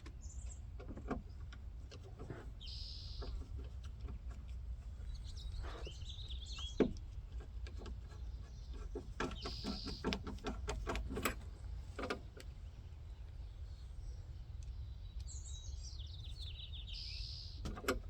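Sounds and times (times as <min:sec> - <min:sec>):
birds chirping: 0:02.2 - 0:03.8, 0:04.8 - 0:10.5, 0:12.1 - 0:18.0.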